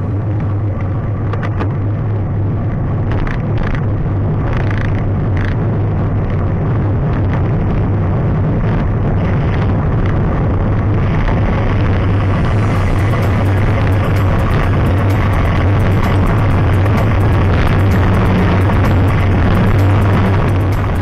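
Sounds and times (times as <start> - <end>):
bike rolling noise: 0.0 - 21.0
wind rumble on microphone: 0.0 - 21.0.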